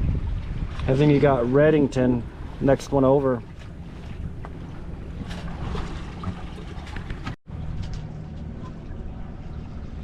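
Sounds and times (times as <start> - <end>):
wind on microphone: 0.0 - 2.6
water along hull: 0.0 - 10.0.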